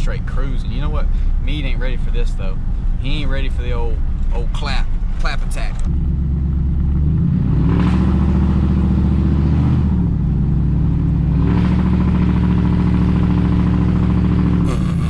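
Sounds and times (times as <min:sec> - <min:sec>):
pickup truck exhaust droning: 0:05.8 - 0:15.0.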